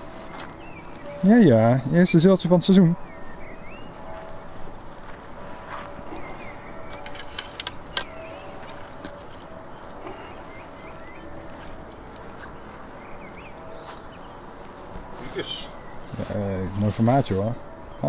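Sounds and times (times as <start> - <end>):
birds singing: 0.0 - 18.0
sharp clicks: 6.9 - 9.2.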